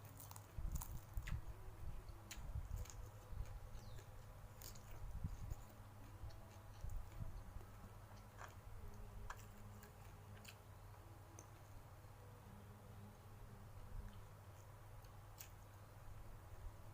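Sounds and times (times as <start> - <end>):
person chewing: 0.0 - 1.5, 2.3 - 10.6, 14.1 - 15.6
low steady hum: 0.0 - 16.9.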